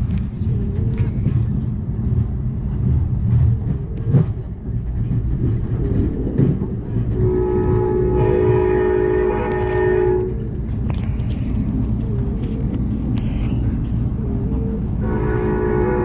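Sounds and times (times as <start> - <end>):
train low rumble: 0.0 - 16.0
train horn chord: 7.2 - 10.4, 15.0 - 16.0.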